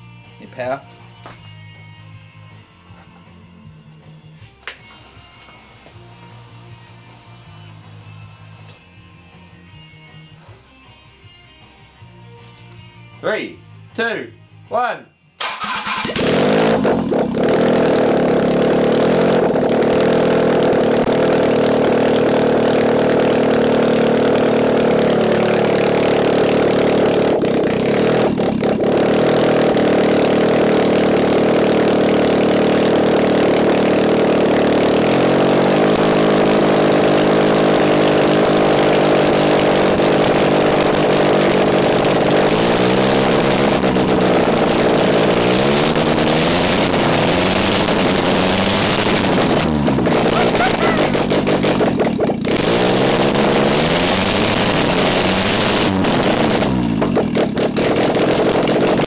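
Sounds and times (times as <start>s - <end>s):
engine revving: 15.4s - 59.0s
engine starting and idling: 15.4s - 59.0s.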